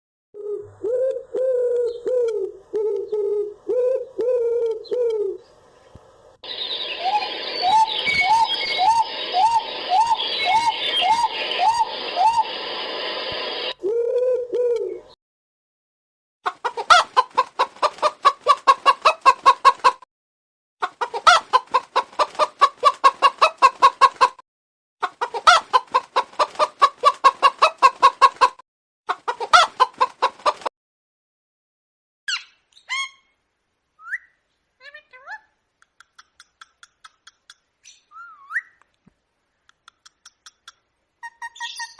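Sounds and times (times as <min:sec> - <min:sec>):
chicken clucking: 0:16.4 - 0:20.0, 0:20.8 - 0:24.4, 0:25.0 - 0:30.7.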